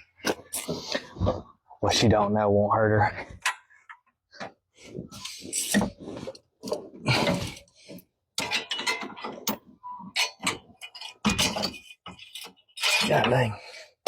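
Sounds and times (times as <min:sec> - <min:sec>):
metallic clicks and clanks of tools: 0:08.4 - 0:13.5.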